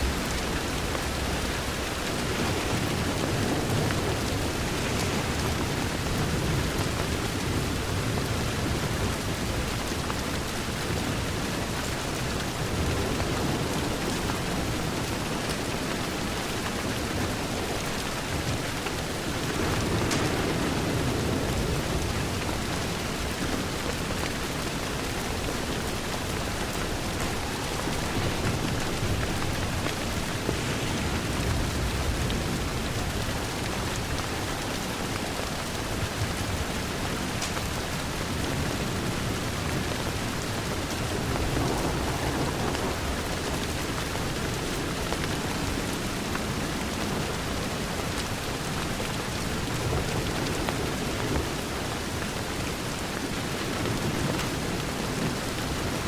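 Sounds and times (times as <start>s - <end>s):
heavy rain on window glass: 0.0s - 56.0s
low rumble: 27.4s - 33.8s.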